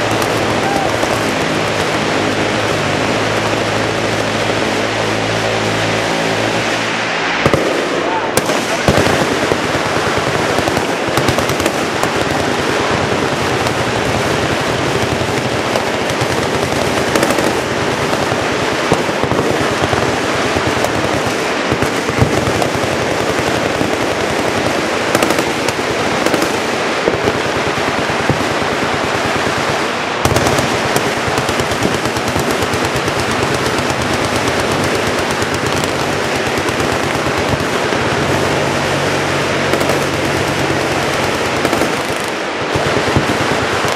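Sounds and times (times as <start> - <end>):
machine guns firing: 0.0 - 6.7, 7.4 - 43.9.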